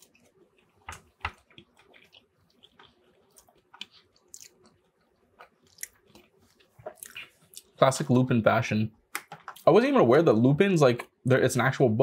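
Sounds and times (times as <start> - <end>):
person chewing with wet mouth clicks: 0.0 - 7.8.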